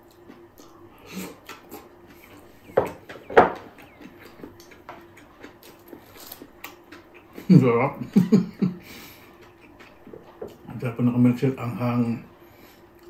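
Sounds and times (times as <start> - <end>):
chewing and lip-smacking: 0.0 - 7.8, 8.5 - 10.8.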